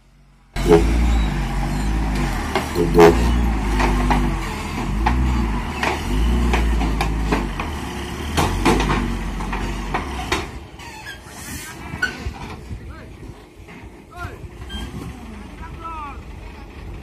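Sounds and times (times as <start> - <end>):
truck engine revving: 0.0 - 12.4, 14.4 - 17.0
sharp knocks and clanks: 1.8 - 10.6.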